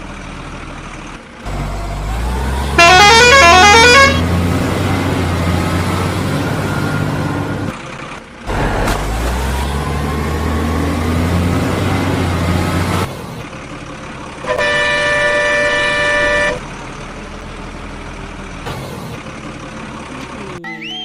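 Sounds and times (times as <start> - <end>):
electronic horn tune: 2.8 - 4.2, 14.5 - 16.6.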